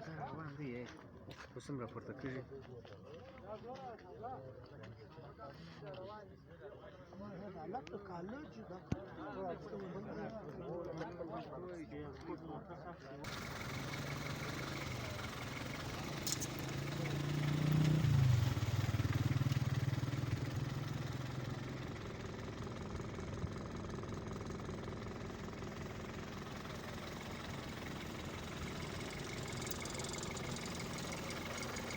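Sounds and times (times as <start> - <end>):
vehicle engine passing by: 13.3 - 31.9.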